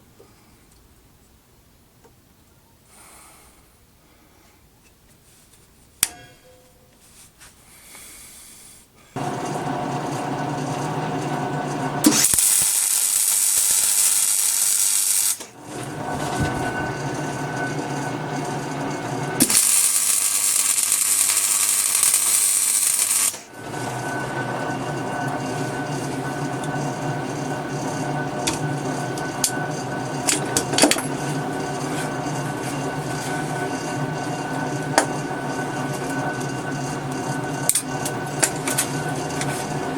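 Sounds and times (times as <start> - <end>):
grinding metal hiss: 7.7 - 39.9
power tool motor running: 9.2 - 39.9.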